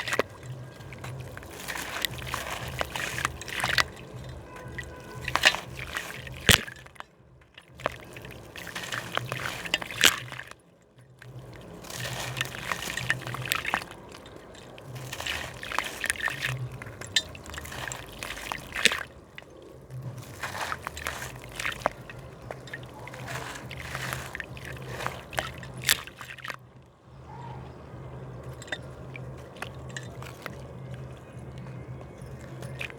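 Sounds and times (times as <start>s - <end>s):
slab crackling and snapping: 0.0s - 10.6s, 11.2s - 26.6s
water splashing and trickling: 0.0s - 32.9s.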